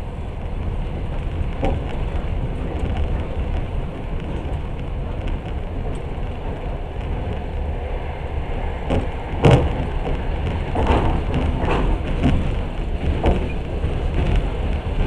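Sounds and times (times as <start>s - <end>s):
train rumbling on rails: 0.0s - 15.0s
sharp clanks and knocks: 8.8s - 15.0s.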